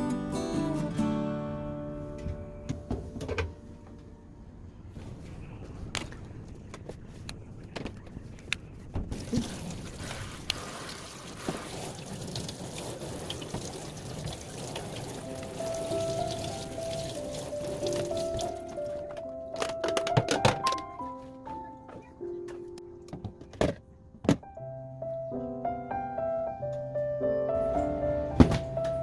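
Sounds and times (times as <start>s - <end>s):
water pouring and running: 9.1s - 19.0s.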